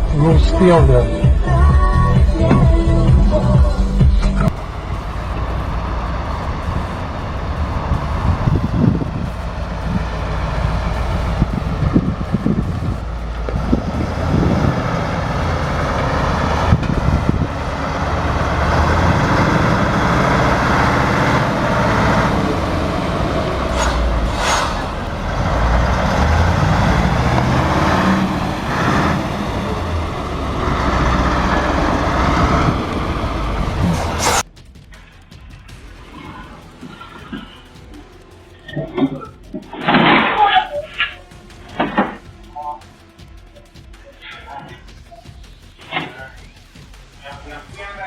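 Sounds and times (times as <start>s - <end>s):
truck diesel engine under load: 0.0s - 34.5s
road noise: 0.0s - 48.0s
wind noise: 4.3s - 42.5s
brief hiss: 23.7s - 25.1s.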